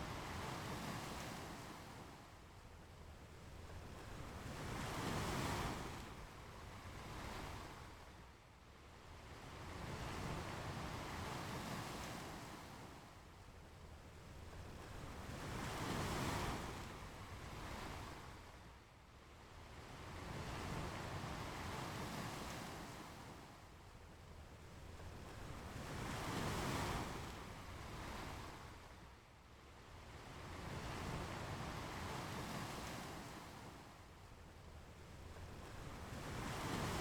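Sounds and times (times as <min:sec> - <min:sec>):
ocean waves breaking on shore: 0:36.0 - 0:37.0.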